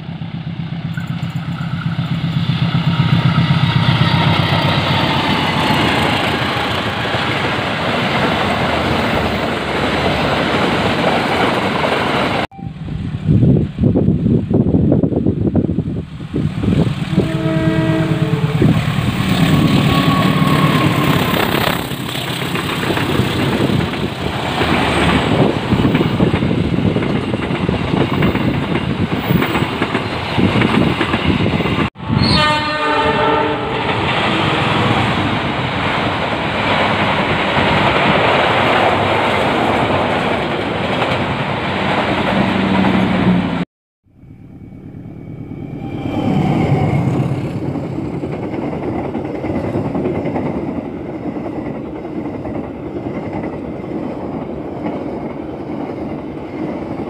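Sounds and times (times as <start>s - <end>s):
train wheels rushing on rails: 0.0s - 43.6s, 45.2s - 57.0s
train horn: 17.1s - 21.5s, 32.0s - 34.7s.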